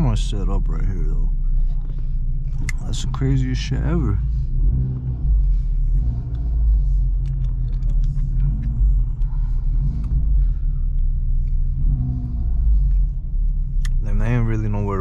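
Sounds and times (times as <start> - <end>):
car engine low rumble: 0.0 - 15.0.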